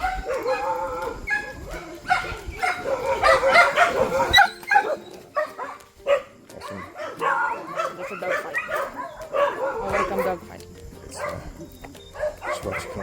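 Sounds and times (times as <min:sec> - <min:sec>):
dogs barking: 0:00.0 - 0:13.0
dogs snarling: 0:00.0 - 0:13.0
dogs yelping: 0:00.0 - 0:13.0.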